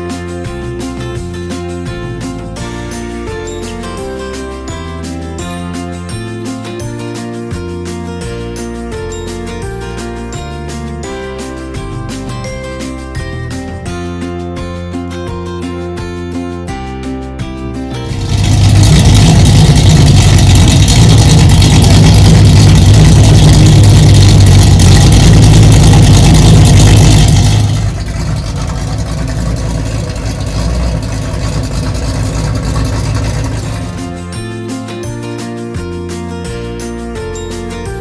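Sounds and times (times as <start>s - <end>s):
car engine running: 18.0s - 34.4s.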